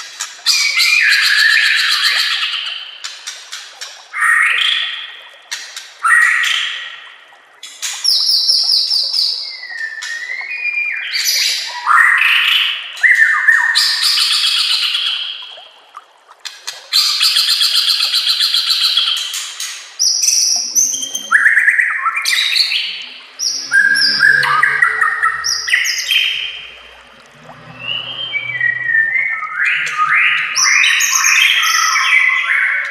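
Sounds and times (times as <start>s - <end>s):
bird singing trills and whistles: 20.0s - 26.8s, 27.6s - 32.9s.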